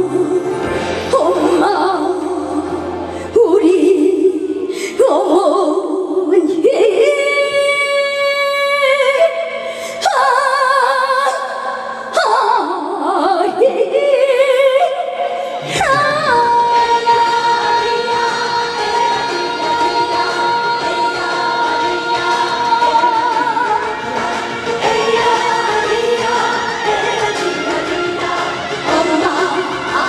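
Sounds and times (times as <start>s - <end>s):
backing music: 0.0s - 5.3s, 15.6s - 30.0s
woman singing with vibrato: 0.0s - 30.0s.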